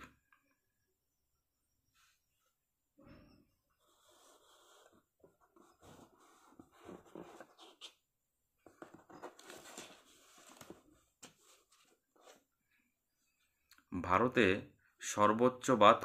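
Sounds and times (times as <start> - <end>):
soft rustling: 8.6 - 12.5.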